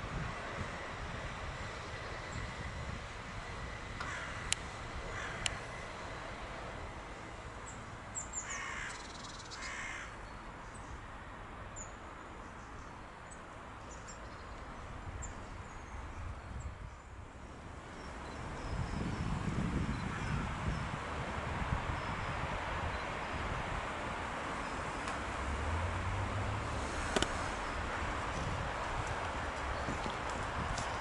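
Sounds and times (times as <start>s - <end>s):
bird cawing: 4.0s - 5.6s, 8.4s - 10.2s, 20.1s - 20.5s.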